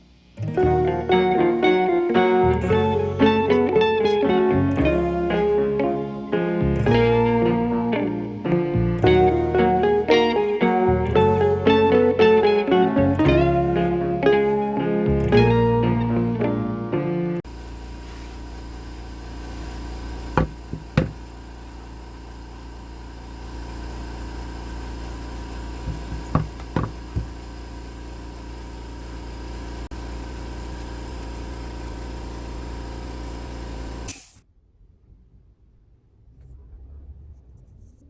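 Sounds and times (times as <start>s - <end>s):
power saw running: 17.5s - 34.4s
sharp knocks on wood: 20.4s - 21.2s, 25.9s - 27.3s.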